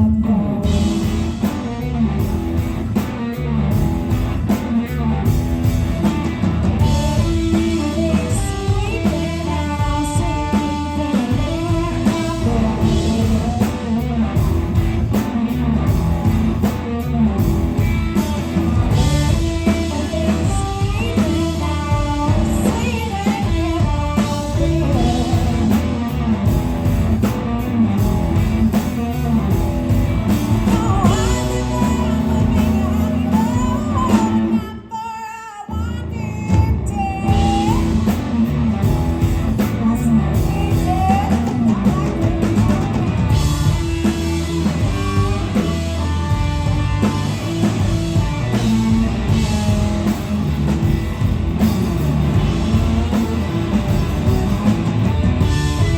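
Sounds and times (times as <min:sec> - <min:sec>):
drum kit: 0:00.0 - 0:34.7, 0:35.8 - 0:55.9
blues-rock band playing: 0:00.0 - 0:35.0, 0:35.7 - 0:55.9
electric guitar: 0:00.0 - 0:55.9
person singing: 0:06.8 - 0:14.4, 0:19.0 - 0:26.5, 0:30.2 - 0:38.8, 0:39.5 - 0:47.6.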